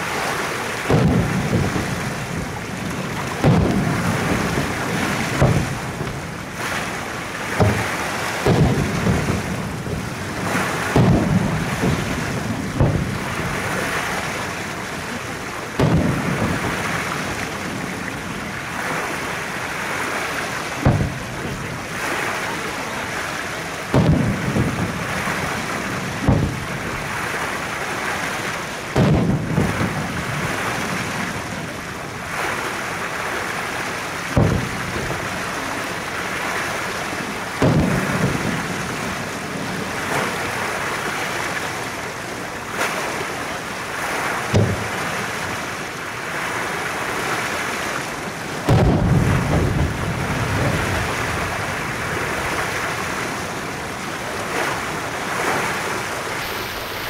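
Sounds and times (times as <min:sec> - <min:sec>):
firework shells bursting: 0:00.8 - 0:13.7, 0:15.8 - 0:17.3, 0:20.8 - 0:21.6, 0:23.9 - 0:27.0, 0:29.0 - 0:30.6, 0:34.4 - 0:35.2, 0:37.6 - 0:39.0, 0:44.5 - 0:45.1, 0:48.7 - 0:50.7.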